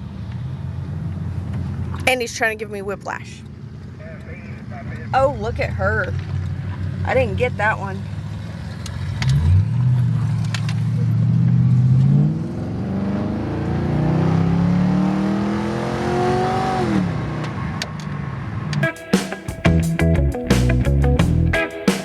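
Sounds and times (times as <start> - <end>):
car engine revving: 8.1 - 17.7
guitar music: 18.8 - 22.0.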